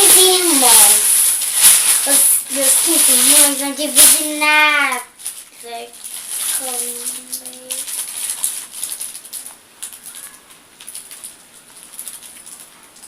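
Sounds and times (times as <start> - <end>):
gift box rustling and crinkling: 0.0 - 4.4, 5.2 - 12.7.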